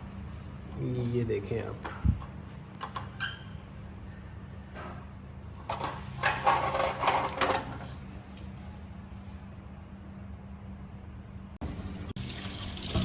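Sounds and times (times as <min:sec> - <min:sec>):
toy cars scraping and rattling: 0:05.8 - 0:07.8.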